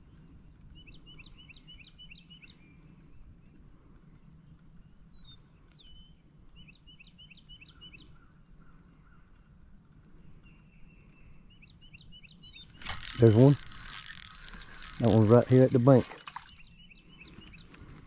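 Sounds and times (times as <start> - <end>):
outdoor background noise: 0.0 - 18.0
songbird chirping: 10.2 - 18.0.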